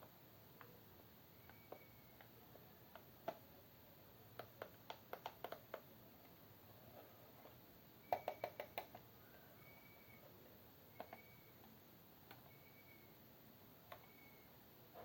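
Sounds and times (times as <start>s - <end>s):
light sharp plastic clicks: 10.9s - 12.6s.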